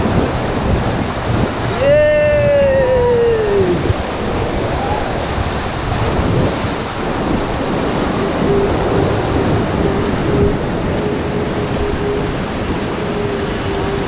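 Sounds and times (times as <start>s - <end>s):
whitewater river roaring: 0.0s - 14.0s
wind buffeting microphone: 0.0s - 14.0s
person shouting: 1.7s - 3.9s.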